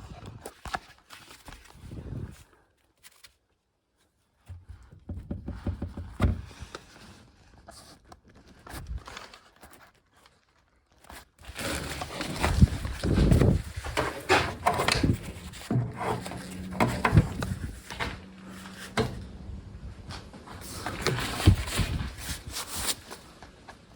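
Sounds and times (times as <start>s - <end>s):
handling knocks and clicks: 12.2s - 23.8s.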